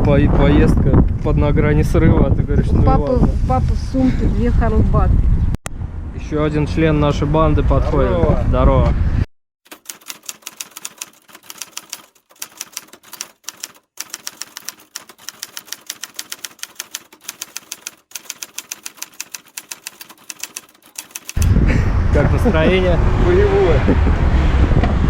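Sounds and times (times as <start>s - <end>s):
typewriter key clicks: 9.7s - 21.5s.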